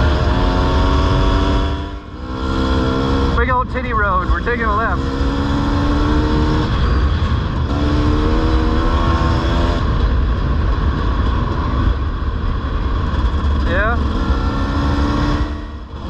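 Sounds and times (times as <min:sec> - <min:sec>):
dirt bike engine running: 0:00.0 - 0:16.0
heavy low rumble: 0:00.0 - 0:16.0.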